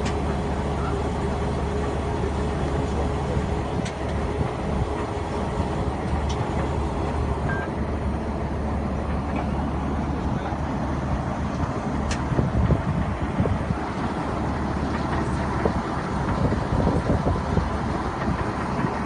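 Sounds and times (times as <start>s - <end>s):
heavy drilling rig engine: 0.0s - 19.0s.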